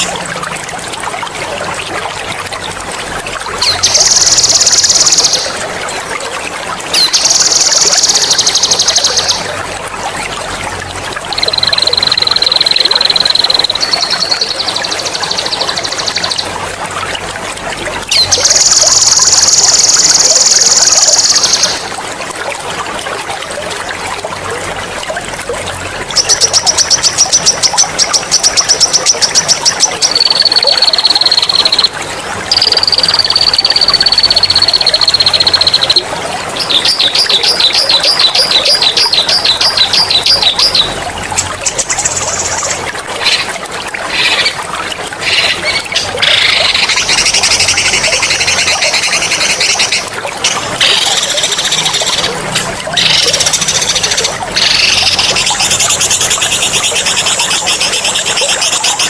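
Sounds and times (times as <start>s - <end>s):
water trickling and gurgling: 0.0s - 59.0s
songbird singing trills: 11.3s - 16.5s, 26.2s - 31.9s, 32.5s - 36.0s.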